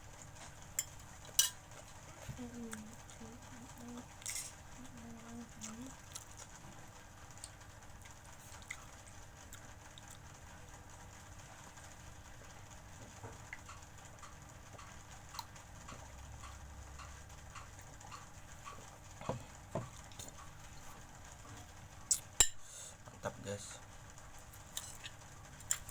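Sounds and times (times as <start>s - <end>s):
chewing and mouth clicks: 5.5s - 10.3s, 13.5s - 18.9s.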